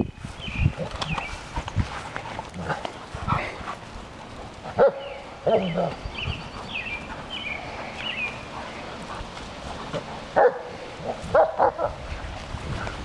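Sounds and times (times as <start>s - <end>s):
puppies barking: 4.2s - 12.0s.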